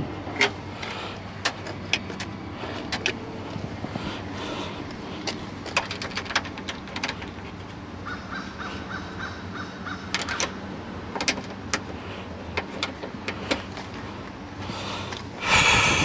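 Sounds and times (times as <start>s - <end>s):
bird calls: 8.0s - 10.6s
clicks and taps on car door hardware: 10.1s - 13.8s.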